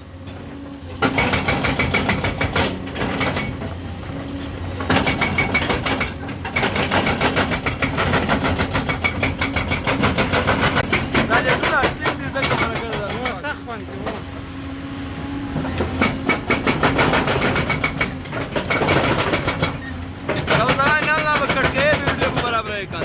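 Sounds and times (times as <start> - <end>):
excavator engine hum: 0.0 - 23.0
hydraulic breaker hammering: 1.0 - 14.4, 15.6 - 23.0.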